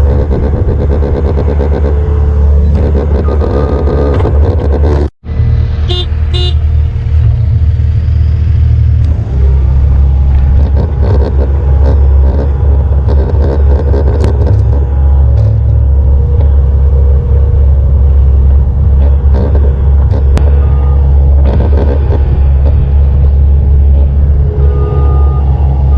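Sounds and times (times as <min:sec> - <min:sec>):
vehicle engine droning: 0:00.0 - 0:25.9
short beeping tones: 0:02.6 - 0:04.8, 0:20.4 - 0:22.4, 0:24.0 - 0:25.9.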